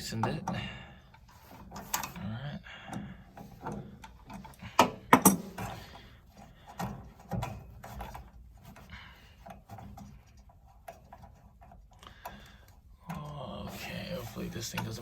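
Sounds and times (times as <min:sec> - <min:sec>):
tool knocks and rubbing: 0:03.4 - 0:08.9.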